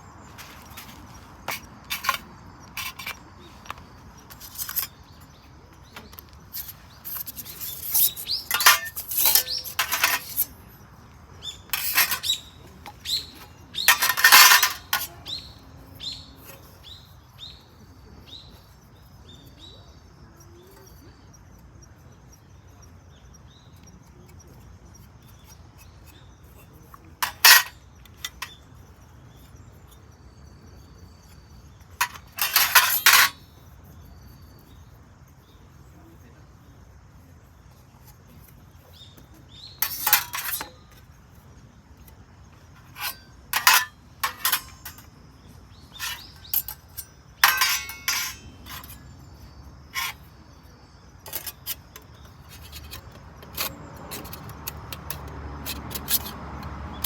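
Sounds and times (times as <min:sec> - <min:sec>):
bird chirping: 0:00.0 - 0:55.3
metal pieces clinking and rattling: 0:01.5 - 0:02.2, 0:06.6 - 0:10.5, 0:13.8 - 0:15.2, 0:27.2 - 0:28.5, 0:32.0 - 0:33.4, 0:39.8 - 0:40.8, 0:42.8 - 0:45.2, 0:45.9 - 0:49.0.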